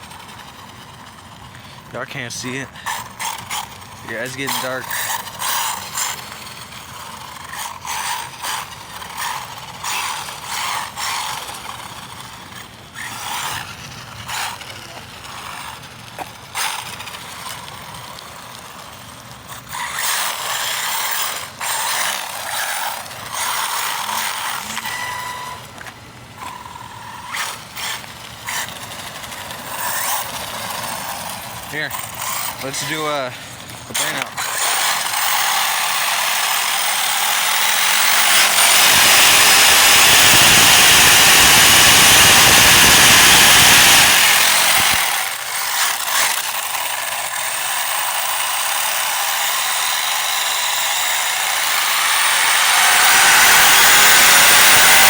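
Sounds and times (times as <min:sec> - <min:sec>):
electric rc car motor whining: 0:00.0 - 0:55.0.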